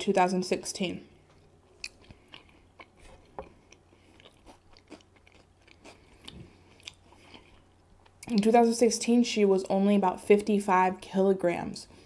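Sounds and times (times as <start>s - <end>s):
chewing with wet mouth clicks: 1.3s - 8.5s.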